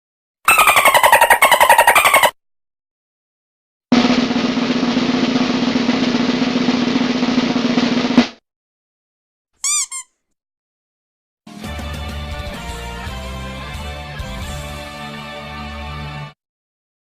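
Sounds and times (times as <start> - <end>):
pitch-bending chirps: 0.5 - 2.4
snare drum roll: 3.9 - 8.4.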